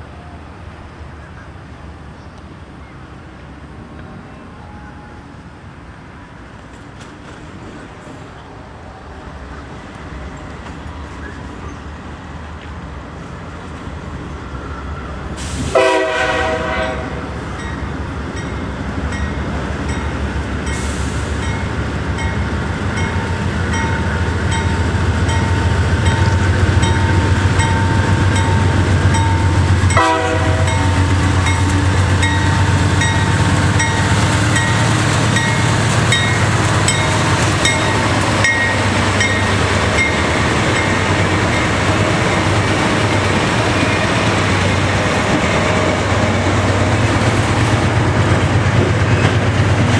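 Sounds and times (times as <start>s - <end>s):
train horn blasts: 15.7s - 17.3s, 29.9s - 32.7s.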